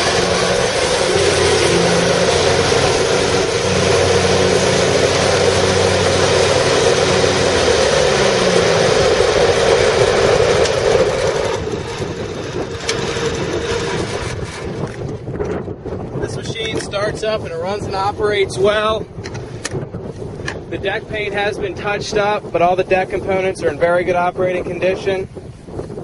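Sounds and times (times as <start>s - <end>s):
lawn mower engine running: 0.0s - 15.2s.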